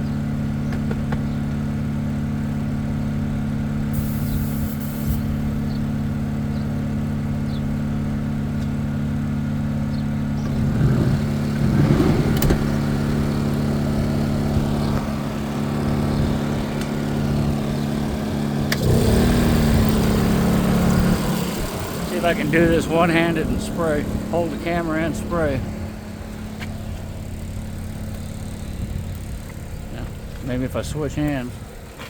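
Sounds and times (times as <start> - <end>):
air compressor motor humming: 3.9 - 7.2, 11.2 - 31.3.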